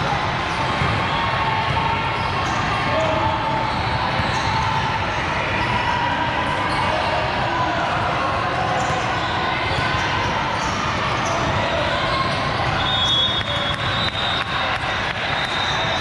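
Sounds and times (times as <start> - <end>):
hubbub of voices: 0.0 - 16.0
balls bouncing and being hit: 0.3 - 3.4.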